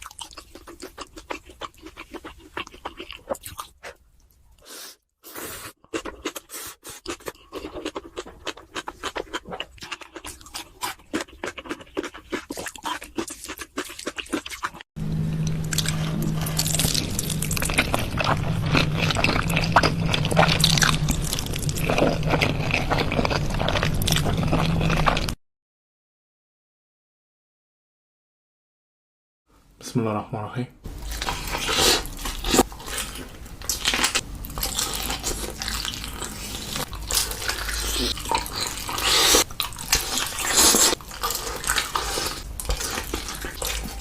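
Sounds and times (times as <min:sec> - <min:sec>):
wet chewing clicks: 0:00.0 - 0:04.4, 0:05.8 - 0:14.8
steady low hum: 0:15.0 - 0:25.1.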